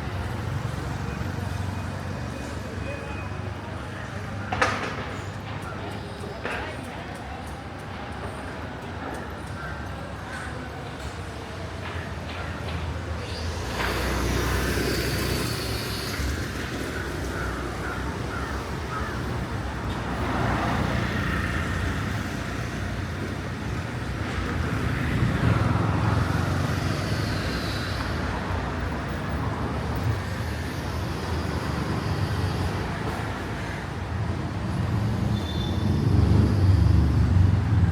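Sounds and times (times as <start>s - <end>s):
road traffic passing: 0.0s - 37.9s.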